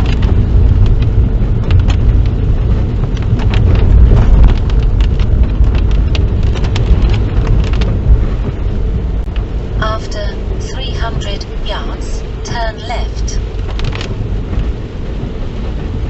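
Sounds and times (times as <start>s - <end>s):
car engine and tyres rumbling: 0.0s - 9.8s, 13.4s - 16.0s.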